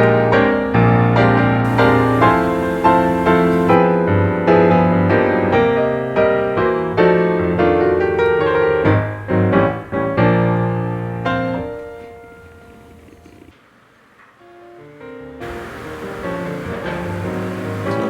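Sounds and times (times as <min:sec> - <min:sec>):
piano chords: 0:00.0 - 0:04.2, 0:15.4 - 0:18.0.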